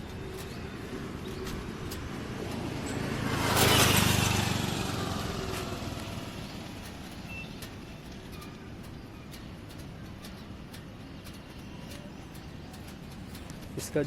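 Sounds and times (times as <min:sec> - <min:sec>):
vehicle driving past: 0:00.0 - 0:07.6.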